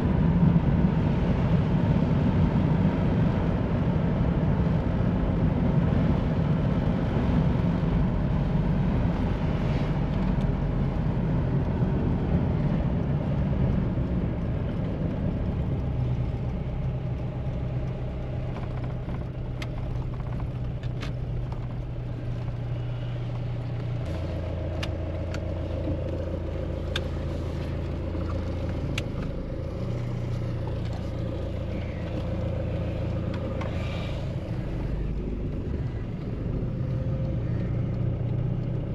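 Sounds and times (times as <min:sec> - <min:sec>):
car engine running: 0:00.0 - 0:38.9
road noise: 0:00.0 - 0:38.9.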